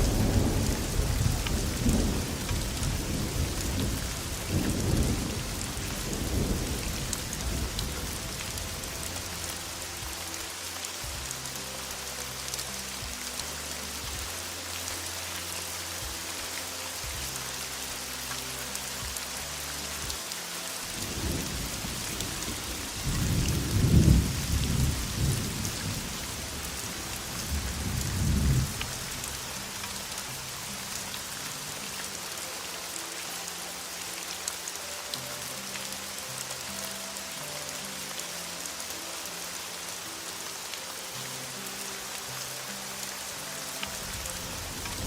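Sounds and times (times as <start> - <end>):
rolling thunder rumble: 0.0 - 8.6, 22.4 - 26.2
heavy rain falling: 0.0 - 45.0.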